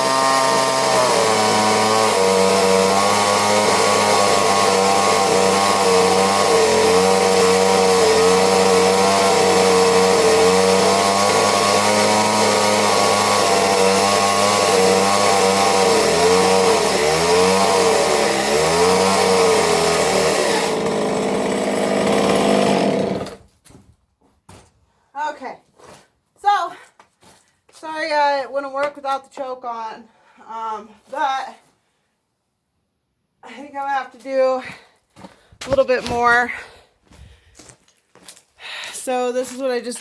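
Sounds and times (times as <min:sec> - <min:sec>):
chainsaw cutting wood: 0:00.0 - 0:23.5, 0:34.2 - 0:37.7.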